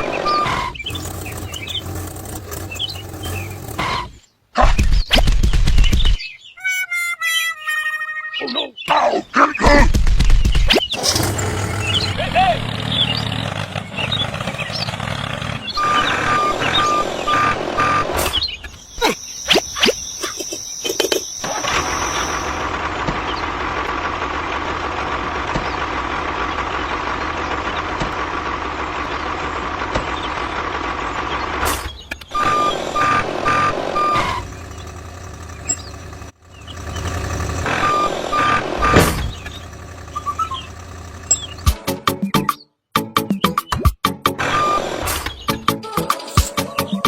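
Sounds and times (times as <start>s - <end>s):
truck engine running: 0.0s - 4.2s, 11.0s - 18.3s, 21.2s - 42.1s
reversing alarm beeping: 0.1s - 0.8s, 15.8s - 18.2s, 21.0s - 22.6s, 32.3s - 34.6s, 37.6s - 39.6s, 44.5s - 44.9s.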